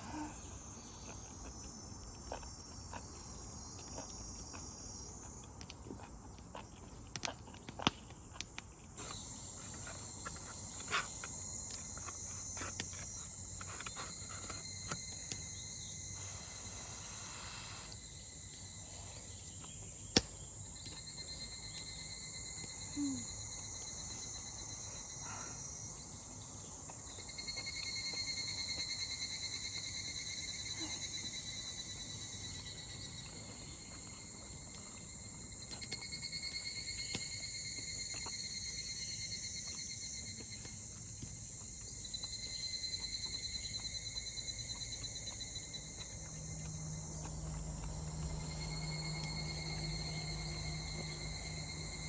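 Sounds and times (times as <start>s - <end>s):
insects chirring: 0.0s - 52.0s
low hum: 44.4s - 52.0s.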